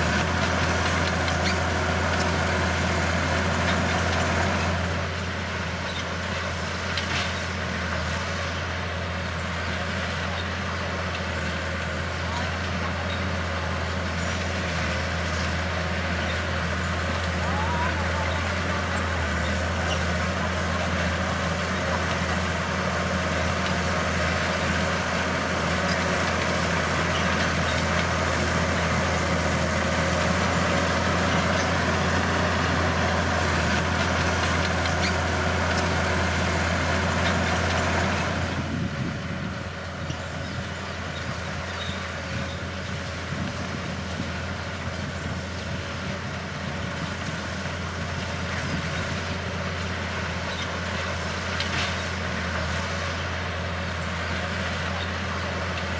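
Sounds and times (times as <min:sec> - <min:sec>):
bulldozer diesel engine: 0:00.0 - 0:55.9.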